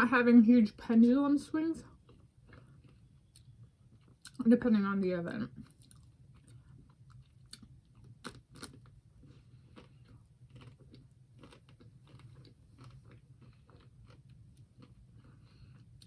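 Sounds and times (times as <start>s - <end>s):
chewing ice cream bar: 1.8s - 4.4s, 5.5s - 16.0s
chocolate shell crunching: 5.6s - 16.0s.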